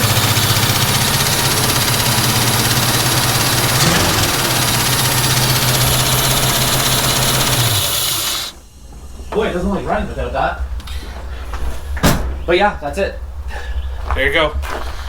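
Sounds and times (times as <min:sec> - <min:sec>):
car engine idling: 0:00.0 - 0:08.7
valve and lifter noise: 0:00.0 - 0:08.7.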